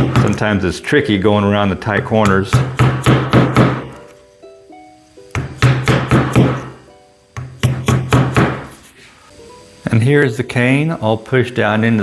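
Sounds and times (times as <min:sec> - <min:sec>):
quiet background music: 0:00.0 - 0:12.0
sharp knocks of wedge on cane: 0:02.2 - 0:04.0, 0:05.4 - 0:06.8, 0:07.4 - 0:08.8.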